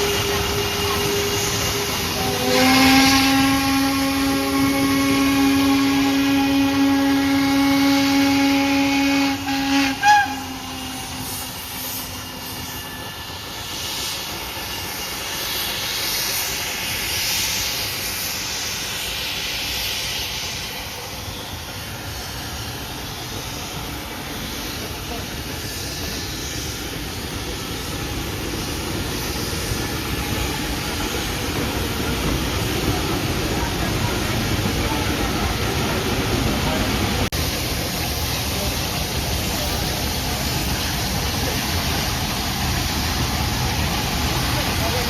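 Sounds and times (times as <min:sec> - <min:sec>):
steam locomotive whistle: 0:00.0 - 0:16.0
steam hissing: 0:00.0 - 0:45.0.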